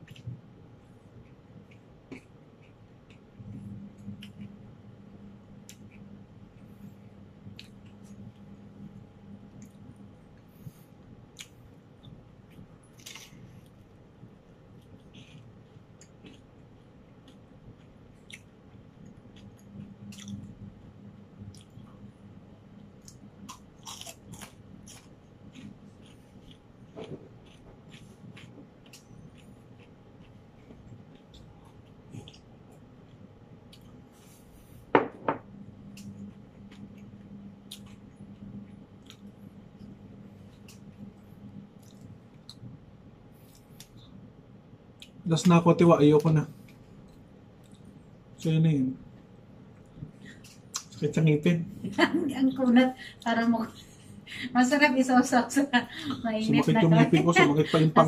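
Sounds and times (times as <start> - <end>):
person chewing crunchy bread: 0.0 - 34.9, 35.7 - 45.3
low steady hum: 0.0 - 58.0.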